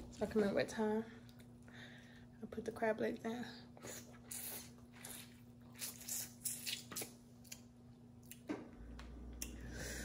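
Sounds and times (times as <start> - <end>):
person chewing wetly: 3.8 - 8.5.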